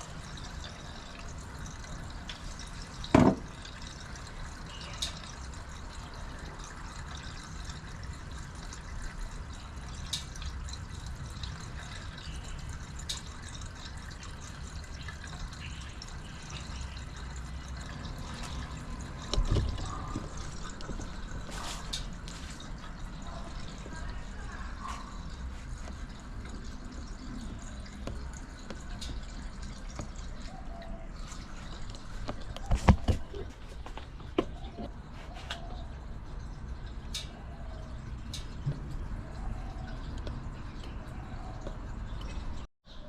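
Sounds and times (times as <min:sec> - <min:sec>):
water trickling: 0:00.0 - 0:43.0
dull thump: 0:03.2 - 0:03.5.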